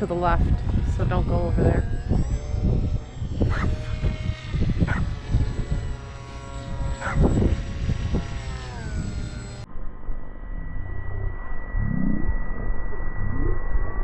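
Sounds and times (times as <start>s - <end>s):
wind buffeting microphone: 0.0s - 9.7s
electric motor and propeller whining: 0.0s - 14.0s.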